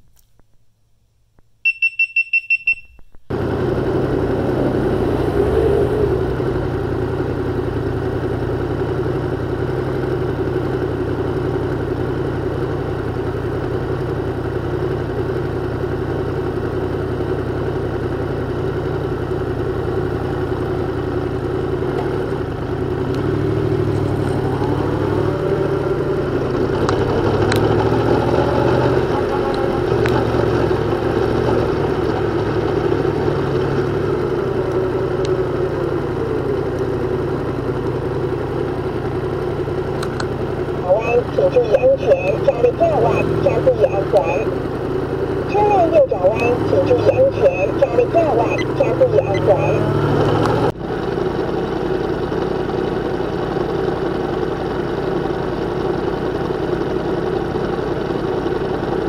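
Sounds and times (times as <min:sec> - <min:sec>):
high camera beeps: 0:01.7 - 0:03.1
motorcycle engine running: 0:03.3 - 0:59.0.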